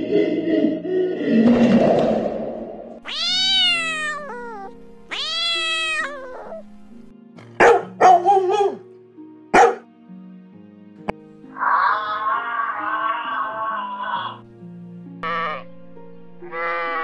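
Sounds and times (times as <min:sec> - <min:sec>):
background music: 0:00.0 - 0:17.0
cat meowing: 0:03.0 - 0:06.7, 0:11.5 - 0:14.4
dog barking: 0:07.6 - 0:08.8, 0:09.5 - 0:09.9.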